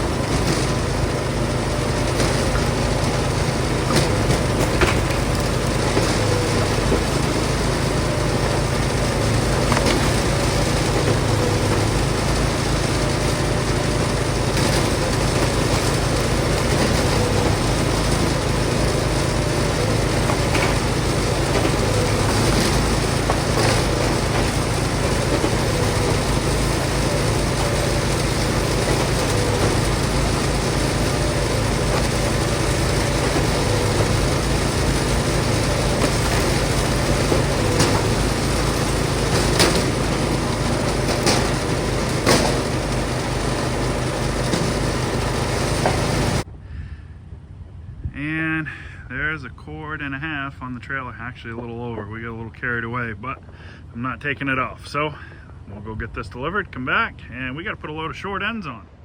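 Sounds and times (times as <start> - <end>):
log splitter engine running: 0.0 - 46.8, 47.6 - 59.0
sharp knocks: 19.6 - 46.4.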